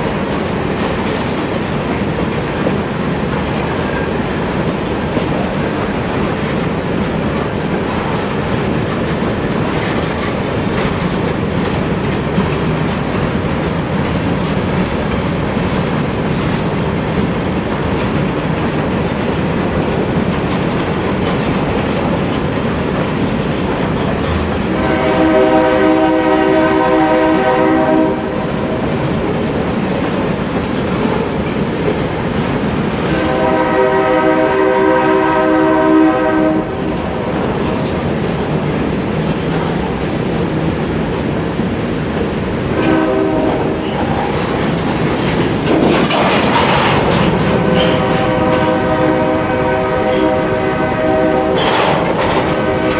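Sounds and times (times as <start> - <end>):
freight train rumble and clatter: 0.0 - 52.9
locomotive air horn blasts: 24.7 - 28.6, 33.0 - 36.9, 42.7 - 43.8, 47.5 - 52.9.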